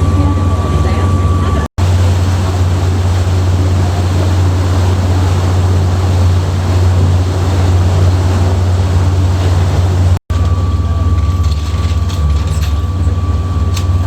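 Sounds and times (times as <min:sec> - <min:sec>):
boat engine drone: 0:00.0 - 0:14.0
wind: 0:00.0 - 0:14.0
rushing water: 0:01.8 - 0:10.2.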